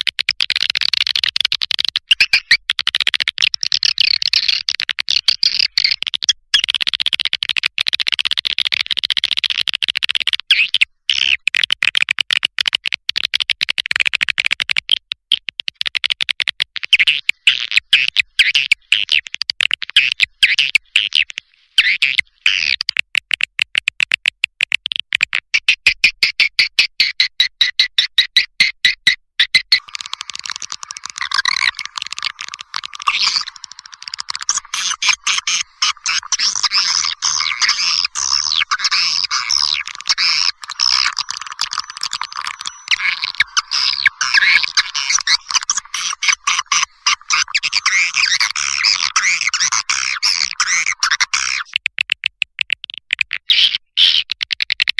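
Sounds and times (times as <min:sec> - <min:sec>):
swiftlet twittering chirps: 0:29.7 - 0:51.7.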